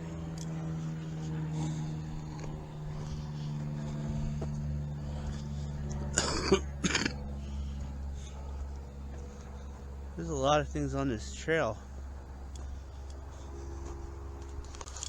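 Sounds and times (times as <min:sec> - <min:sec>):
low steady hum: 0:00.0 - 0:15.0
man coughing: 0:06.1 - 0:07.3.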